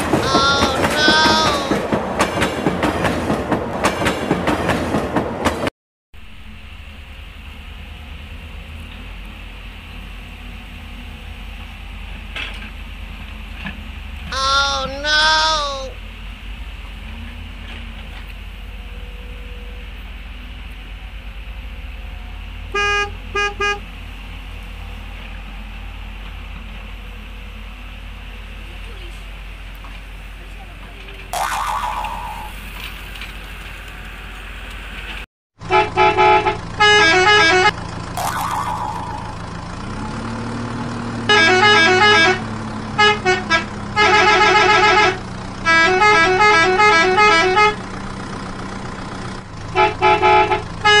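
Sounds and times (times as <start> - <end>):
ride train wheels clicking on rails: 0.0 - 5.7, 28.5 - 31.3
excavator engine rumble: 6.2 - 31.4
vehicle horn honking: 22.8 - 23.9, 35.7 - 37.7, 41.3 - 42.4, 43.0 - 47.8, 49.8 - 51.0.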